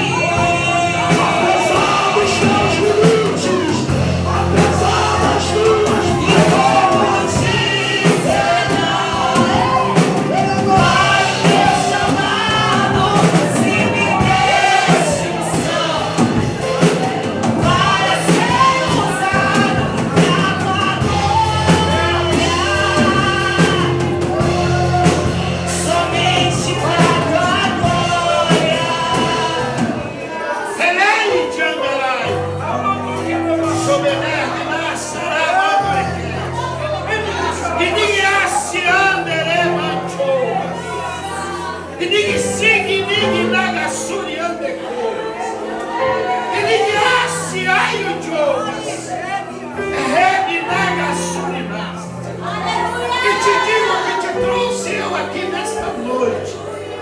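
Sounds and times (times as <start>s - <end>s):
band with sustained bass notes: 0.0s - 30.1s.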